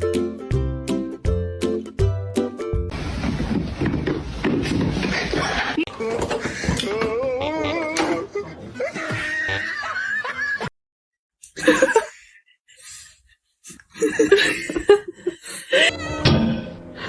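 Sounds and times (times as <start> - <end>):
people laughing: 5.6 - 10.7, 11.6 - 12.2, 14.0 - 15.9.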